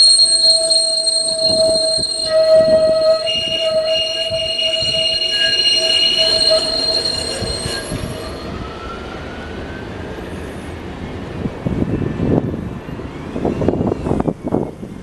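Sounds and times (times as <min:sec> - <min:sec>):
faint rising whine: 0:00.0 - 0:09.0
rail wheels squealing on track: 0:00.0 - 0:15.0.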